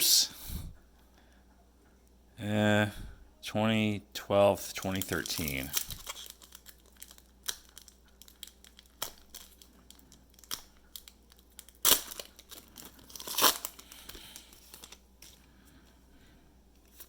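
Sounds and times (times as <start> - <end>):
wrapper tearing and crinkling: 4.8 - 15.4.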